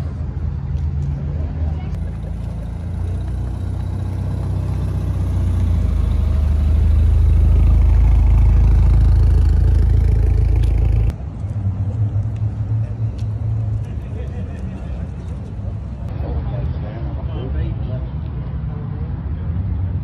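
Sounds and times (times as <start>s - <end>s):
car engine rumbling past: 1.8s - 13.8s.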